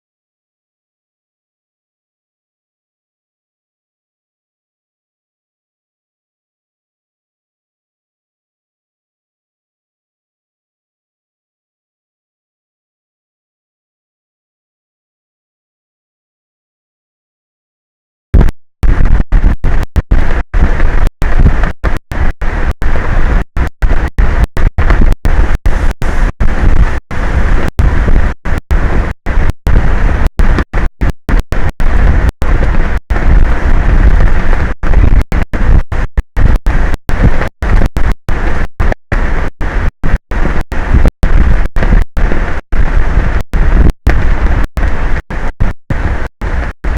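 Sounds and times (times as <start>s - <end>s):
wind buffeting microphone: 18.4s - 46.9s.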